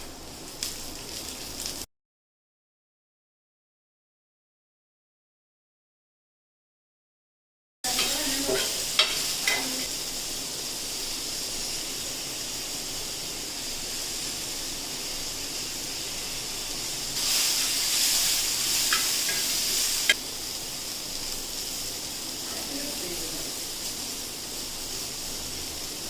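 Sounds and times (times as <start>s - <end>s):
food sizzling in hot oil: 0.0s - 1.9s, 7.9s - 26.0s.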